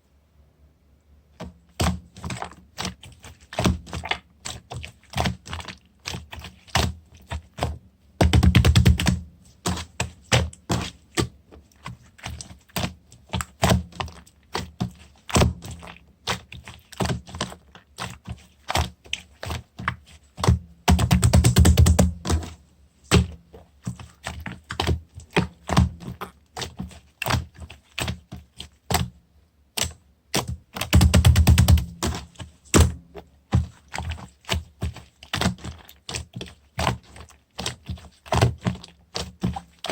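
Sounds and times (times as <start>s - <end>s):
rapid dense slime crackling: 1.7s - 39.9s.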